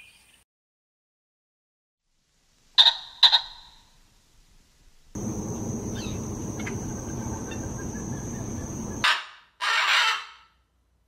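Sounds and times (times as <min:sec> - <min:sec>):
harsh bird squawks: 0:02.8 - 0:03.8, 0:05.5 - 0:10.6
faint bird chirps: 0:05.2 - 0:09.0
thin high whine: 0:05.2 - 0:09.0.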